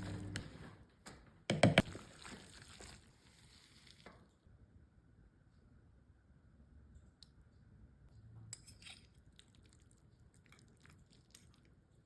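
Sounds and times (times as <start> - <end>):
wet squishing of spaghetti: 1.8 - 4.3, 9.0 - 12.0.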